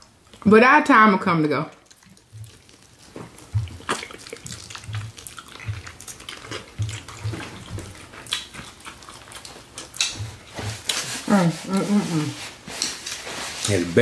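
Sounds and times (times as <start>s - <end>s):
close chewing and lip-smacking: 0.0s - 0.5s, 1.7s - 13.7s
soft low thumps: 3.2s - 6.0s.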